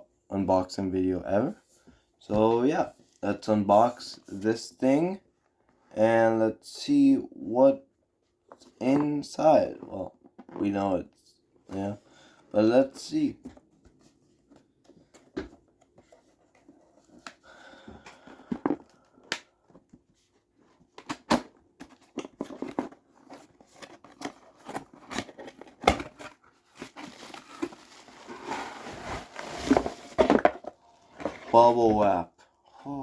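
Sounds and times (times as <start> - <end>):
packaging tearing and crinkling: 23.7 - 30.4.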